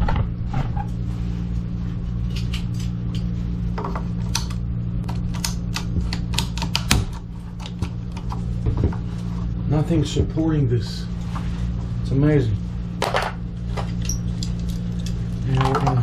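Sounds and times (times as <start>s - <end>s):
steady low hum: 0.0s - 16.0s
pipe cutter clicking: 4.3s - 4.6s.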